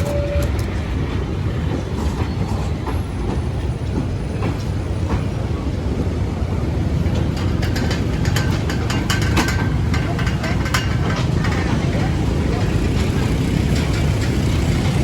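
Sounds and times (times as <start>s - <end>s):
sharp track clicks: 0.0s - 1.0s, 6.9s - 15.0s
train rumbling on track: 0.0s - 15.0s.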